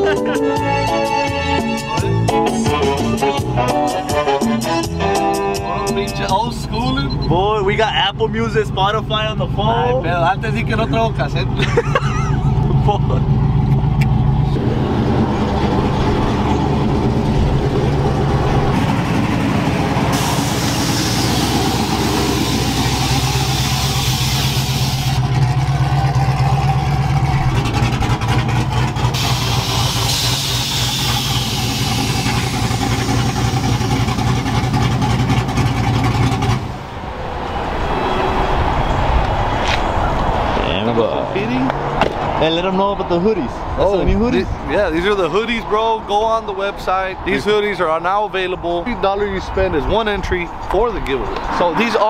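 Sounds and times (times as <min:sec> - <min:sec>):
vehicle engine droning inside cab: 0:11.9 - 0:40.8.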